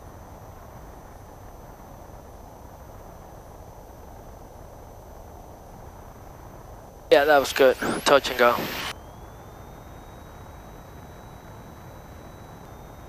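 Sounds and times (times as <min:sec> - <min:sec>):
light aircraft cabin noise: 0:05.8 - 0:13.0
faint thin high tone: 0:07.1 - 0:13.0.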